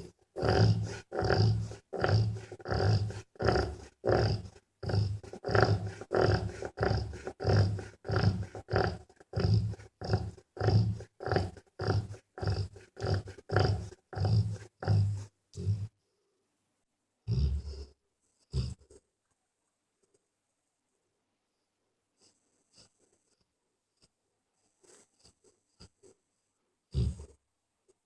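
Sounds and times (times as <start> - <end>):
dog snoring: 0.0 - 15.9, 17.3 - 19.0, 26.9 - 27.4.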